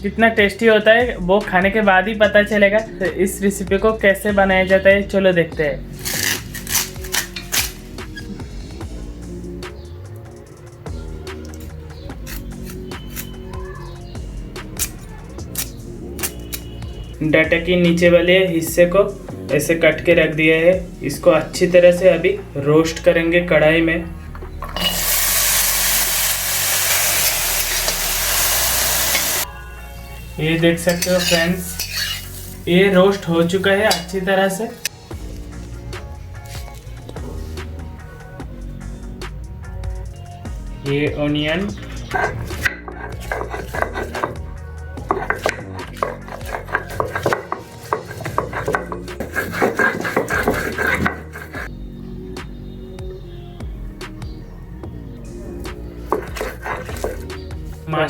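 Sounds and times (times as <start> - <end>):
background music: 0.0 - 58.0
metal utensil scraping a pan: 6.0 - 7.7, 24.6 - 29.4, 30.5 - 34.3, 41.8 - 51.7, 56.0 - 57.5
vegetables sizzling in hot oil: 24.8 - 29.4, 31.0 - 32.7.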